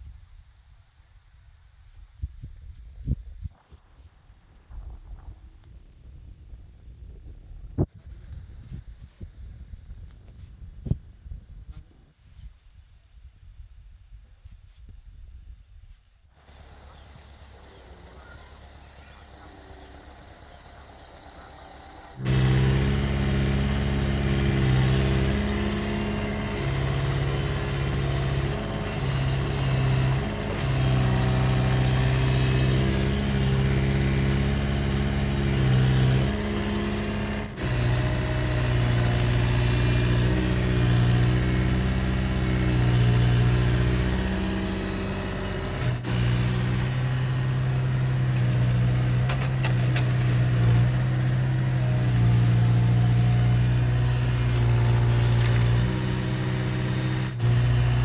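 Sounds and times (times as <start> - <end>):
diesel engine running: 16.4 - 58.0.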